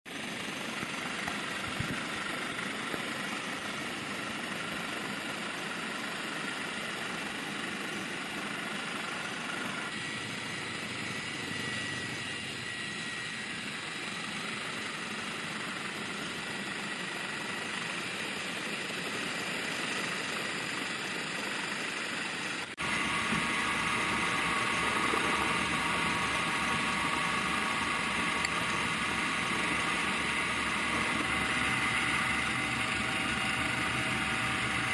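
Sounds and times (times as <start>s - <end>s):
vehicle engine noise: 0.1s - 13.2s.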